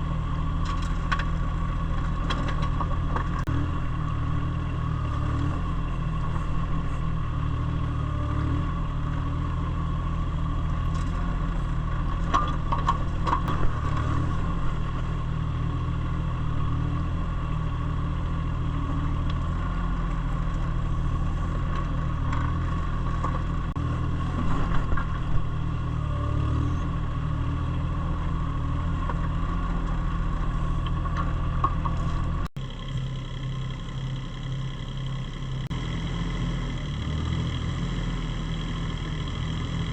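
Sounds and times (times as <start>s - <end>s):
digging clanks and scrapes: 0.6s - 3.6s, 10.9s - 15.0s.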